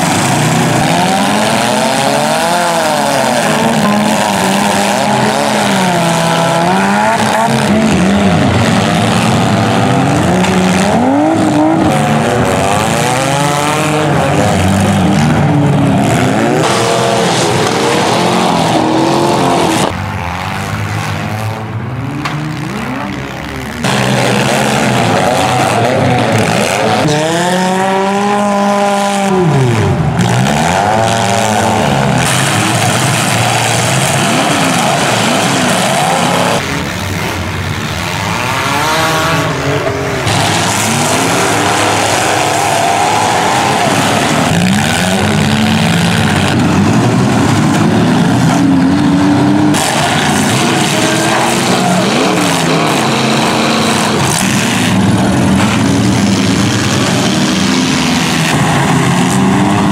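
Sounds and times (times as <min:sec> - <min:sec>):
car engines revving hard: 0:00.0 - 0:59.9
continuous noisy din: 0:00.0 - 0:59.9.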